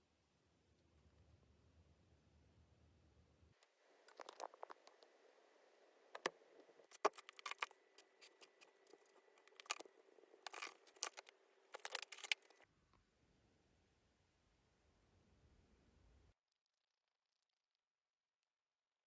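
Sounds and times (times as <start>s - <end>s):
faint steady hum: 0.0s - 16.4s
small objects clicking and scraping: 4.1s - 5.1s, 6.2s - 12.6s.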